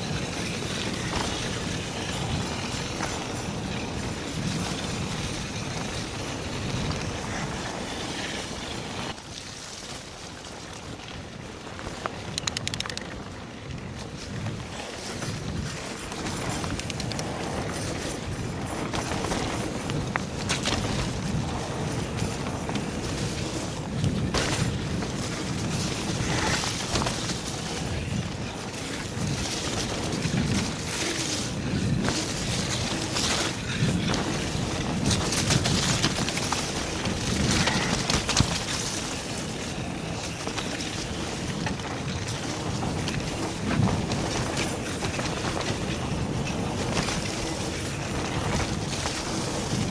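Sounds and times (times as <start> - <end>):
bike tyre and wind noise: 0.0 - 49.9
sharp clicks: 12.4 - 13.1, 16.7 - 17.3.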